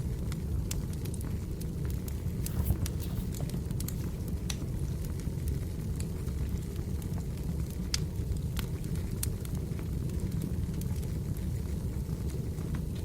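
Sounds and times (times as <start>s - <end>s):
firewood crackling and popping: 0.0s - 13.0s
low rumble of flames: 0.0s - 13.0s.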